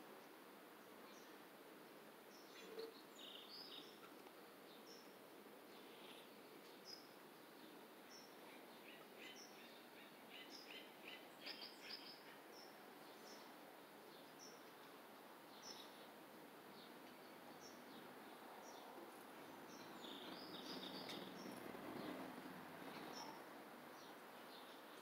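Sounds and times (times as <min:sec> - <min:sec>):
bird chirping: 0:02.3 - 0:04.1, 0:04.7 - 0:13.5, 0:19.6 - 0:22.2, 0:22.8 - 0:25.0.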